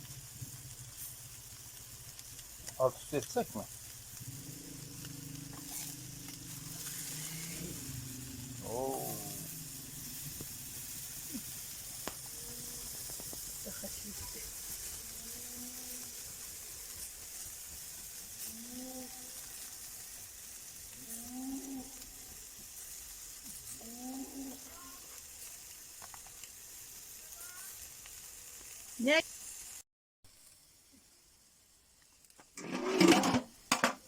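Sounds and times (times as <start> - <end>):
fire crackles: 0.0 - 32.8, 33.5 - 33.8
chicken sizzling on a grill: 0.0 - 34.0.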